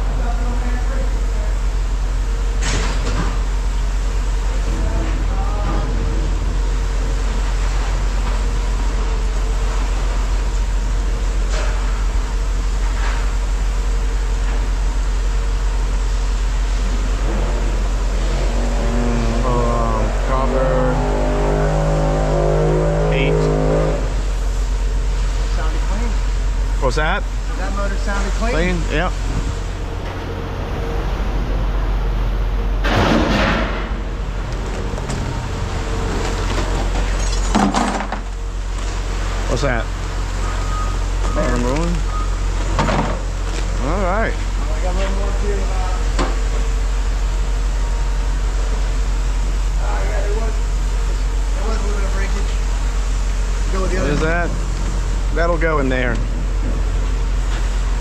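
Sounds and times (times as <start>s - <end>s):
machinery rumbling: 0.0s - 58.0s
pitched hum: 0.0s - 58.0s
loud scraping rush: 18.2s - 24.5s
vehicle engine idling: 19.0s - 42.6s.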